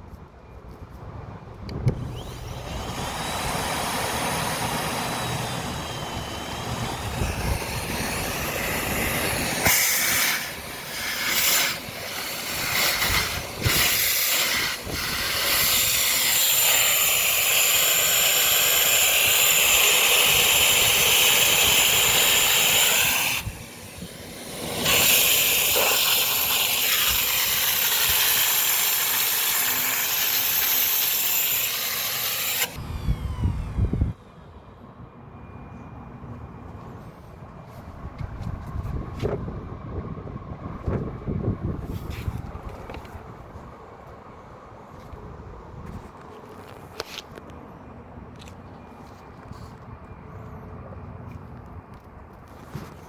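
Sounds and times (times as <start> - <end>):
vacuum cleaner motor hissing: 2.0 - 34.1.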